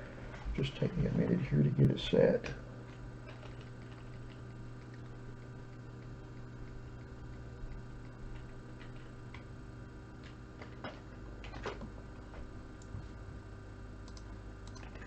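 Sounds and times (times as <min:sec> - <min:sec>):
electrical hum: 0:00.0 - 0:15.0
faint keyboard clicks: 0:14.0 - 0:15.0.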